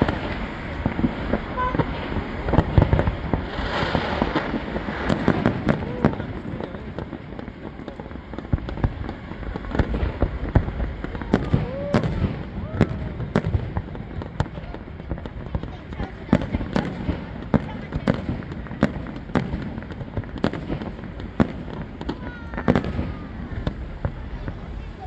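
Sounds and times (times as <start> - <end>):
firework whistles: 0.0 - 6.6, 9.0 - 13.5
fireworks bangs and crackling: 0.0 - 25.0.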